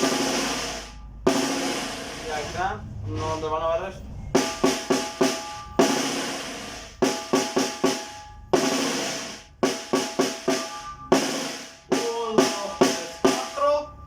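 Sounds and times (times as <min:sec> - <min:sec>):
snare drum strokes: 0:00.0 - 0:02.6, 0:04.4 - 0:13.7.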